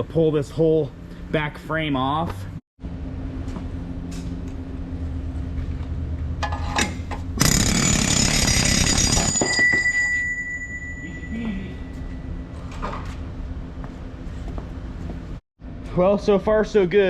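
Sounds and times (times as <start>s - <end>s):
pneumatic air hammer firing: 7.4s - 8.9s.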